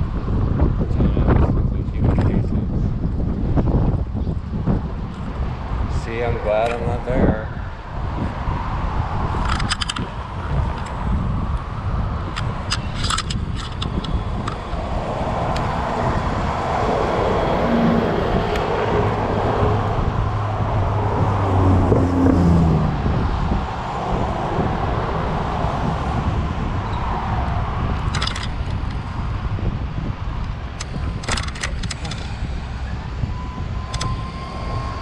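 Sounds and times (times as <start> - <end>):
wind rumble on microphone: 0.0 - 35.0
vehicle engine passing: 14.0 - 28.2.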